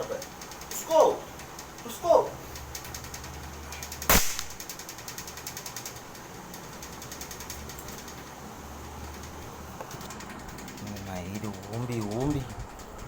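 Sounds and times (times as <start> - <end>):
fast high-pitched ticking: 0.0 - 13.0
air rifle shot: 4.1 - 4.6.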